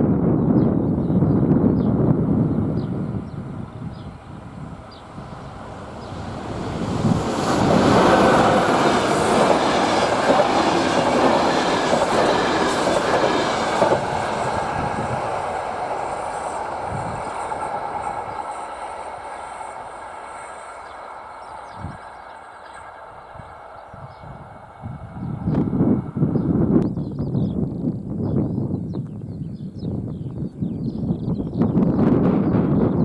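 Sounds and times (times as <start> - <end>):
train passing over rails: 1.2 - 26.8.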